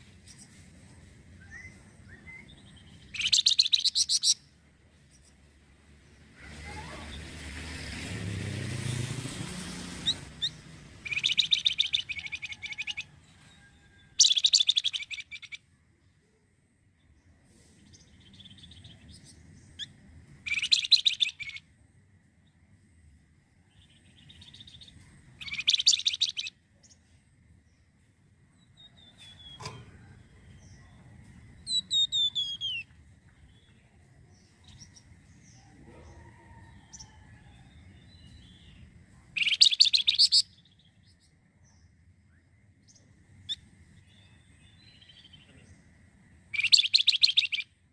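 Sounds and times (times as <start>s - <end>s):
songbird singing whistled notes: 1.4s - 4.5s, 10.0s - 13.1s, 14.2s - 15.6s, 17.8s - 21.7s, 23.7s - 27.0s, 30.3s - 35.6s, 38.0s - 45.5s, 46.5s - 47.8s.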